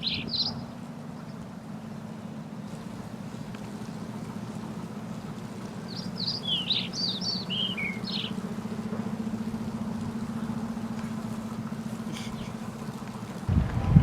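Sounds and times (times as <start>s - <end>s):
steady low hum: 0.0s - 14.0s
bird chirping: 5.9s - 8.4s.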